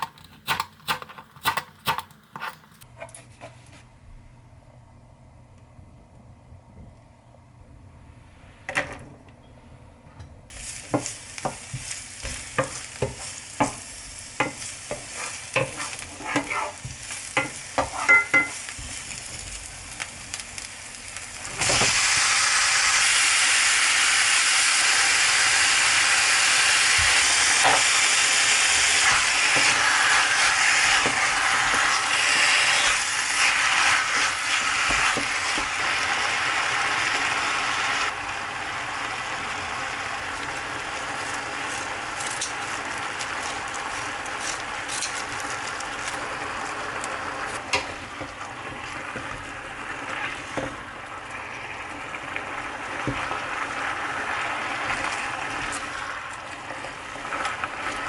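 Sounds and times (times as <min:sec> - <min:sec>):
food sizzling in oiled pan: 0:10.5 - 0:58.0.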